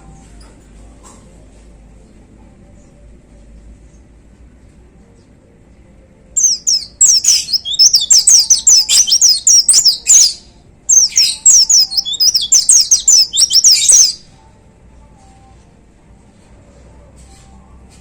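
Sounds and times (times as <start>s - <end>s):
bird singing fast high notes: 6.4s - 14.2s.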